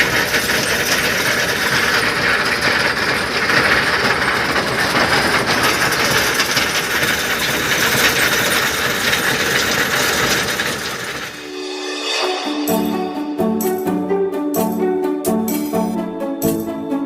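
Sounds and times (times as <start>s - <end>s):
stone picker machine rattling: 0.0s - 11.4s
tractor engine: 0.0s - 16.8s.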